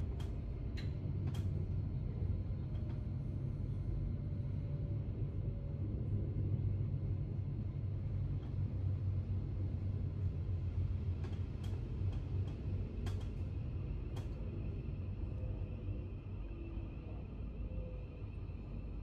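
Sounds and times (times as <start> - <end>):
train running rumble: 0.0 - 19.0.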